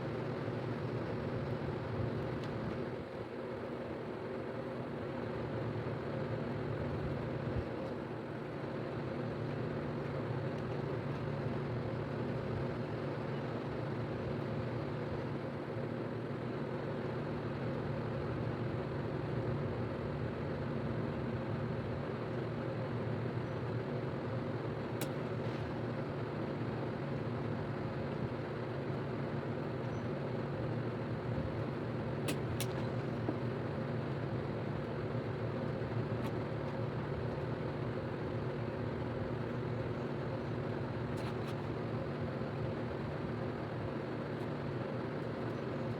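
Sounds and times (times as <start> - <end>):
low mechanical hum: 0.0 - 45.9.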